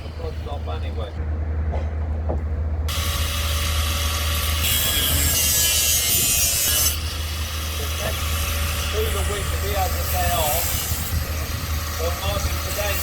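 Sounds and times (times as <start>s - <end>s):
low engine-like hum: 0.0s - 4.1s.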